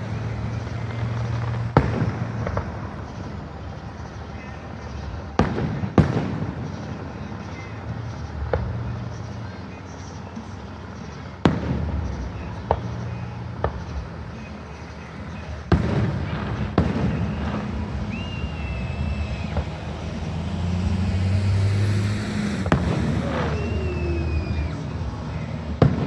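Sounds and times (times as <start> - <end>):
fireworks bangs: 0.0 - 26.0
low rumble: 15.7 - 26.0
thin high whistle: 16.7 - 26.0.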